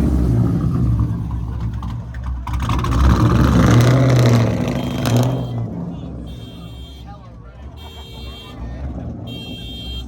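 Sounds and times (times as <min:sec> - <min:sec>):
car engine revving: 0:00.0 - 0:06.4.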